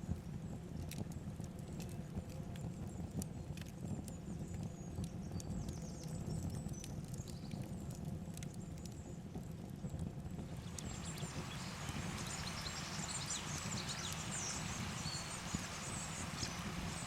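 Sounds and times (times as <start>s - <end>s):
river water running: 10.6s - 17.0s.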